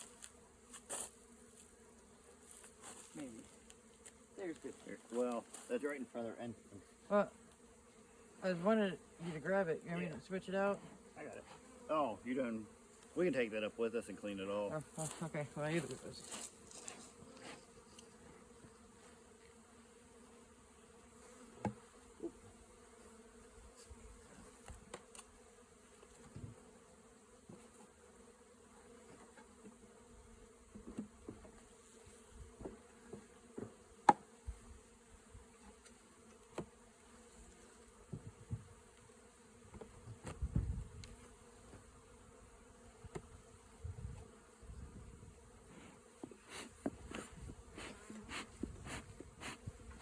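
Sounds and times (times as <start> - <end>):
honeybees buzzing: 0.0 - 50.0
hive frames clicking and knocking: 21.6 - 21.8.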